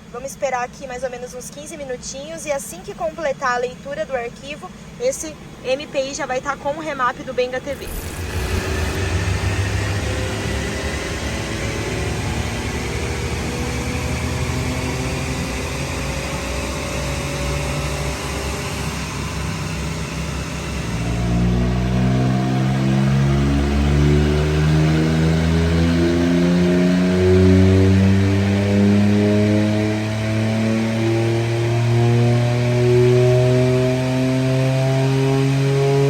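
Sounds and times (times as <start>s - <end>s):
car engine revving on dynamometer: 7.7s - 36.0s.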